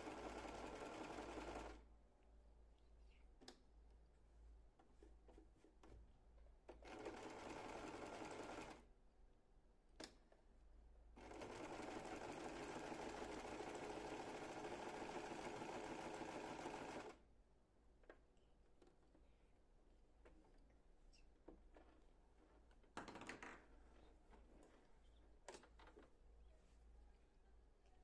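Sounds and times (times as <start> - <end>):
sewing machine stitching: 0.0 - 1.8, 6.7 - 8.8, 11.2 - 17.2.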